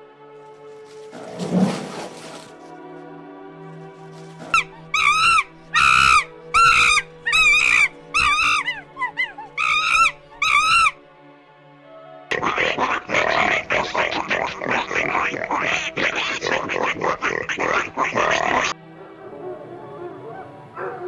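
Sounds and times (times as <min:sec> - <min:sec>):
animal calling shrilly: 0:04.4 - 0:11.0.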